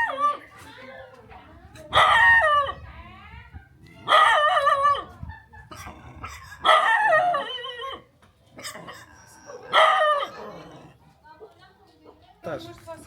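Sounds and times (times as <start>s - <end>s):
dog barking in drawn-out calls: 4.0s - 4.8s, 6.6s - 7.4s, 9.6s - 10.4s.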